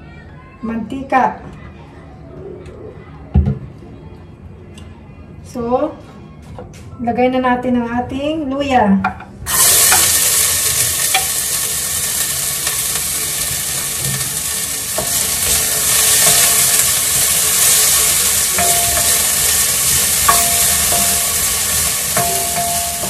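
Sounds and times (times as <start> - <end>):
ginger sizzling in hot oil: 9.5 - 23.0
spatula knocking against pan: 18.6 - 19.6, 20.2 - 23.0.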